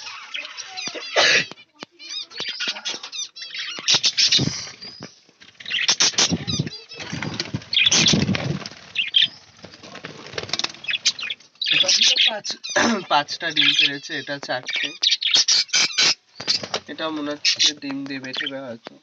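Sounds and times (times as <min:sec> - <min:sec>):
budgerigars chirping: 0:00.0 - 0:09.6, 0:10.6 - 0:18.8
wing flapping: 0:03.7 - 0:11.4, 0:16.4 - 0:17.7.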